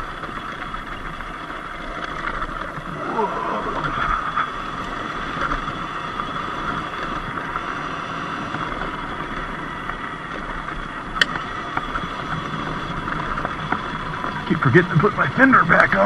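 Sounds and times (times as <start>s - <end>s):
electric motor whine: 0.0s - 16.0s
tyre noise: 1.8s - 7.4s.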